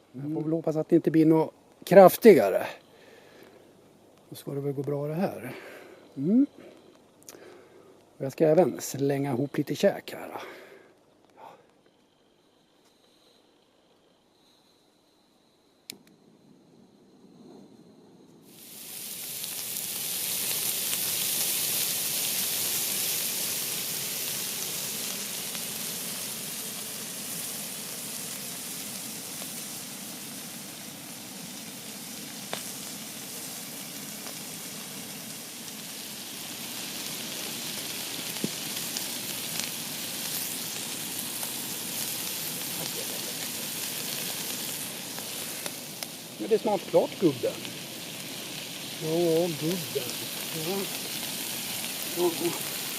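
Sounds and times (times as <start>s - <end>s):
food sizzling: 0.0s - 7.6s, 18.4s - 52.9s
sharp popping of frying food: 18.5s - 52.9s.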